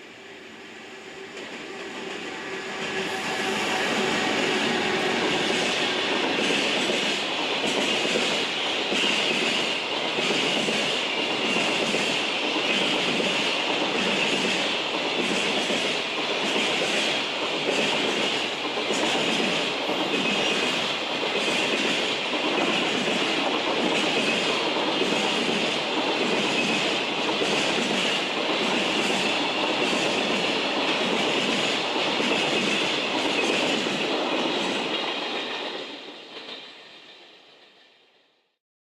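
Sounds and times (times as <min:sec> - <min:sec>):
freight train passing: 0:00.0 - 0:38.6.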